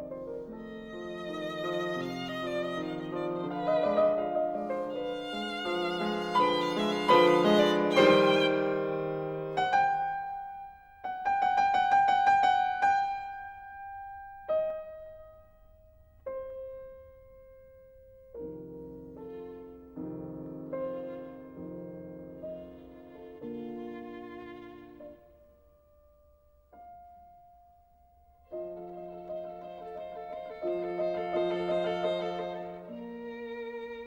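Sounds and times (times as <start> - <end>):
violin melody with vibrato: 0.0 - 10.0, 19.2 - 25.3, 28.5 - 34.0
soft musical accompaniment: 0.0 - 15.7.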